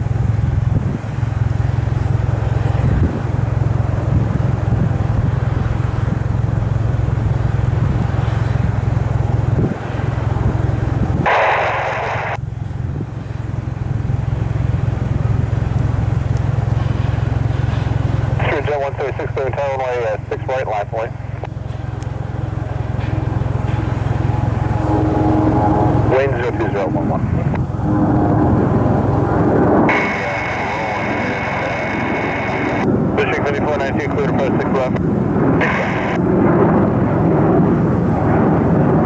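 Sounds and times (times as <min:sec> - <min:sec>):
wind buffeting microphone: 0:00.0 - 0:11.3, 0:21.4 - 0:39.0
jet engines rumbling: 0:00.0 - 0:39.0.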